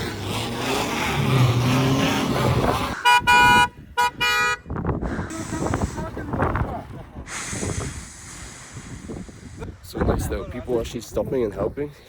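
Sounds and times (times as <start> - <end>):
car horn honking: 3.0 - 4.8.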